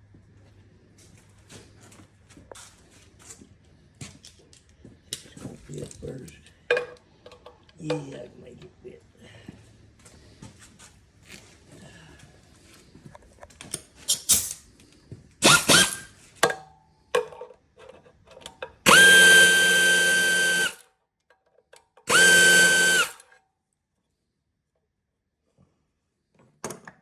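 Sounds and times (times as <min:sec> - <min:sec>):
power driver whining: 0:15.4 - 0:16.1, 0:18.9 - 0:20.8, 0:22.1 - 0:23.2.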